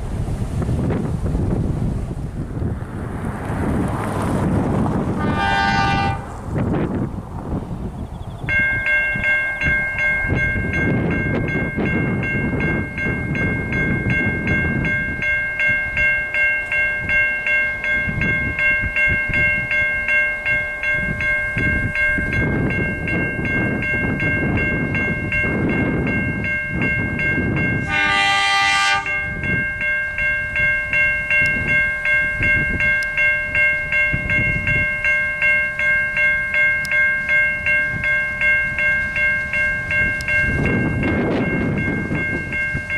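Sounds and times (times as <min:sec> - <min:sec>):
train rumbling past: 0:00.0 - 0:42.9
train horn blast: 0:05.1 - 0:06.4, 0:27.8 - 0:29.4
level-crossing bells ringing: 0:08.4 - 0:42.9.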